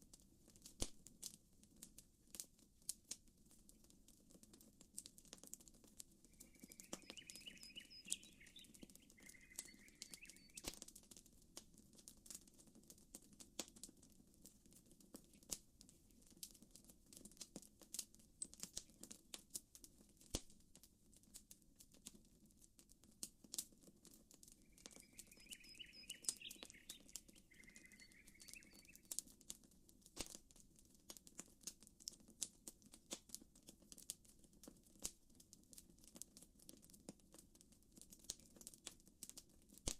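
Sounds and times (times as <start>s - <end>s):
campfire crackling and popping: 0.0s - 39.9s
gentle water ripples: 6.3s - 10.6s, 24.6s - 29.2s
bird chirping: 6.3s - 10.7s, 24.6s - 29.1s.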